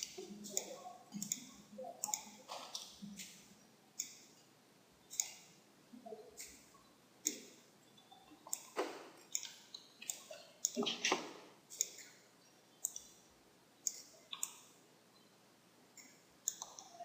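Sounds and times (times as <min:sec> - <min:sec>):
computer mouse clicking: 0:00.0 - 0:04.4, 0:05.1 - 0:05.6, 0:06.4 - 0:12.2, 0:12.8 - 0:13.2, 0:13.8 - 0:14.8, 0:16.0 - 0:17.0.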